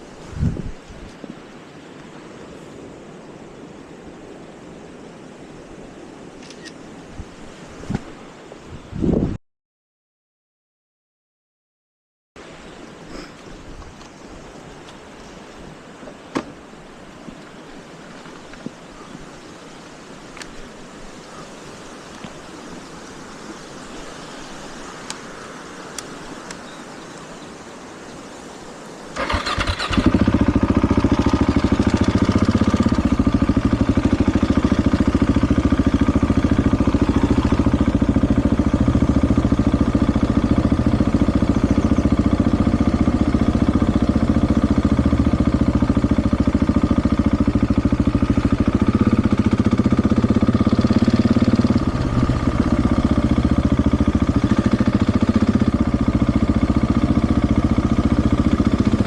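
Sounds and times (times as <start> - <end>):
faint background hiss: 12.4 - 30.2
motorcycle engine starting and idling: 29.1 - 59.0.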